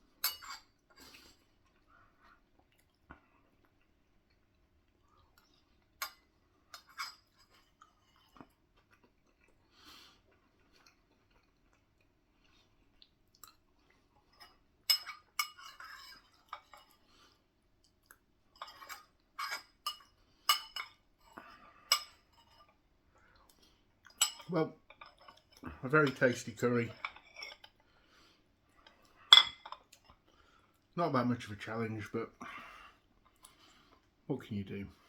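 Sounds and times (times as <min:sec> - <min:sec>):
cutlery clinking on a dish: 0:00.2 - 0:00.8, 0:06.0 - 0:07.6, 0:14.4 - 0:17.0, 0:18.6 - 0:21.0, 0:21.9 - 0:22.8, 0:24.1 - 0:26.2, 0:28.8 - 0:30.0
quiet chewing: 0:00.9 - 0:14.6, 0:21.3 - 0:24.2, 0:32.4 - 0:34.2.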